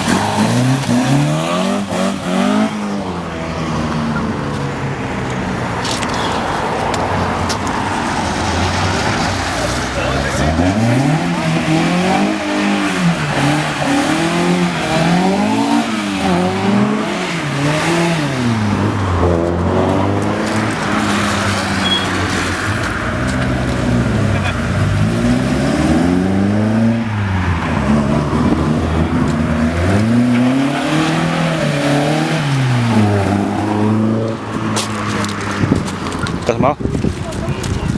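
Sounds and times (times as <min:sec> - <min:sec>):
car engines revving: 0:00.0 - 0:37.9.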